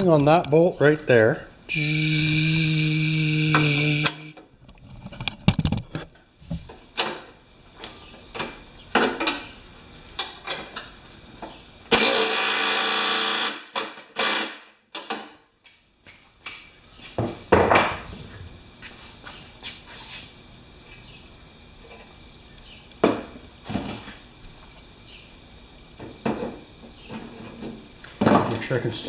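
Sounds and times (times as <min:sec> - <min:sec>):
power tool running: 0:01.7 - 0:04.4, 0:11.9 - 0:14.7.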